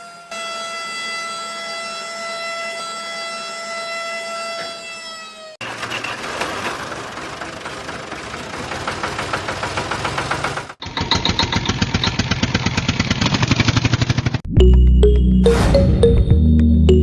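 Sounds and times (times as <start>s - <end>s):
small tractor engine chugging: 5.6s - 14.4s.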